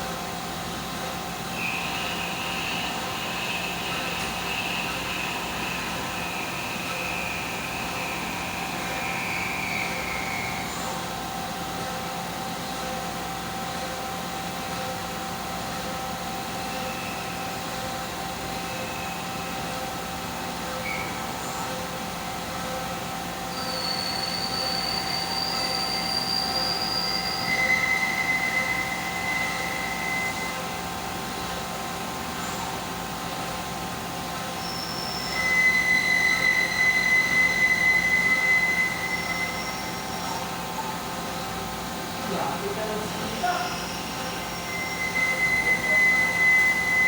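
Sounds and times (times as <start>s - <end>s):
machine humming: 0.0s - 23.6s
high-pitched squeal: 43.2s - 47.0s.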